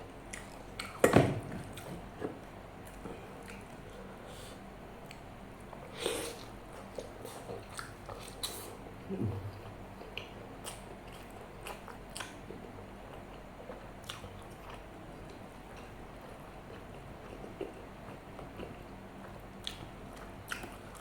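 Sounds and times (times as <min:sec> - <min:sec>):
low mouth sound: 0:09.0 - 0:09.8.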